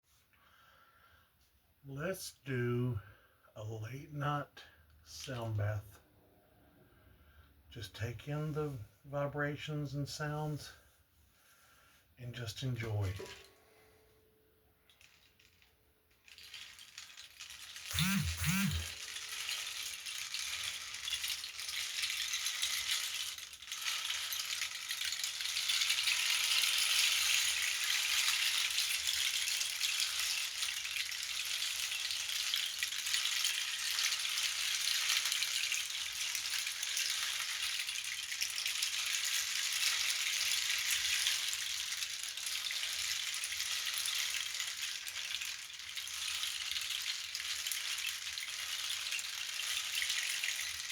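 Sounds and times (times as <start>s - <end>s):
hand percussion rattling: 12.8s - 13.8s, 14.8s - 50.9s.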